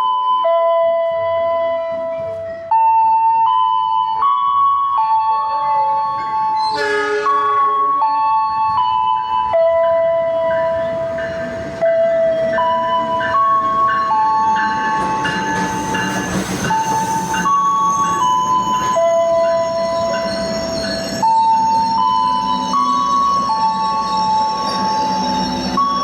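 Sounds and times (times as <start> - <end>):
train rumble: 6.2 - 26.0.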